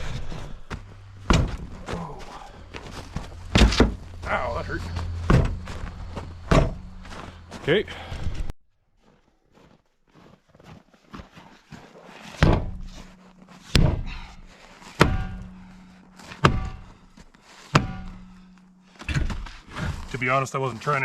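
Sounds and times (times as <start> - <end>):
steel wheel rim struck ringing: 12.6 - 19.7.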